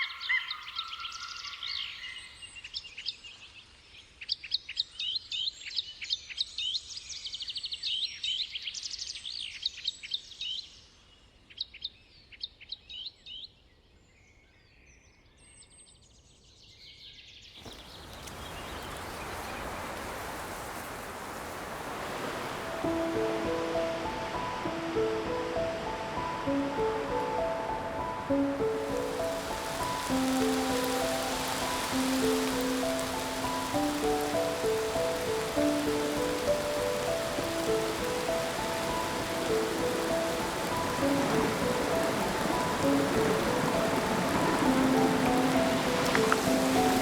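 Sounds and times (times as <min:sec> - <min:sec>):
birds chirping: 0:00.0 - 0:02.4, 0:17.6 - 0:47.0
steady rushing noise: 0:17.8 - 0:47.0.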